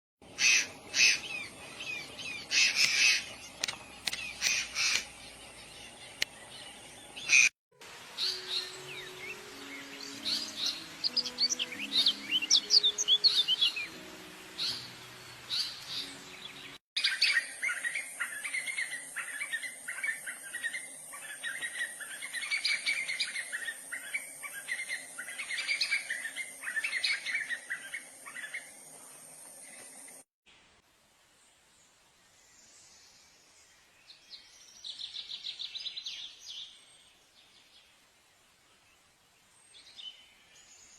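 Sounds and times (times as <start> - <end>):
small birds chirping: 0.2 - 7.5, 8.2 - 30.2
steady high hiss: 7.3 - 34.1.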